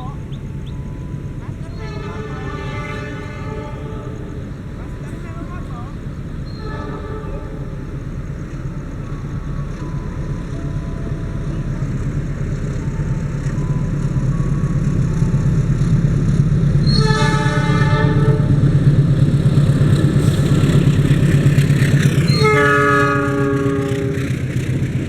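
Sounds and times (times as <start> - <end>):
train rumbling: 0.0 - 25.0
train air horn blasts: 1.6 - 5.8, 6.4 - 8.8, 16.8 - 18.6, 22.2 - 24.4.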